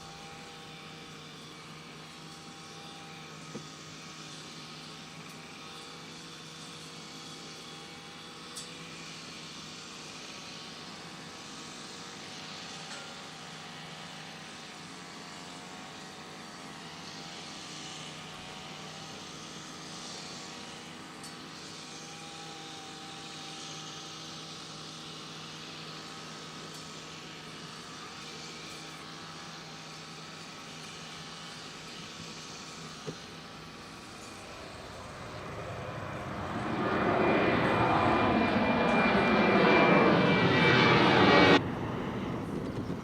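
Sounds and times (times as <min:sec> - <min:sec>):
jet engines running: 0:00.0 - 0:43.0
faint wavering whine: 0:26.3 - 0:43.0.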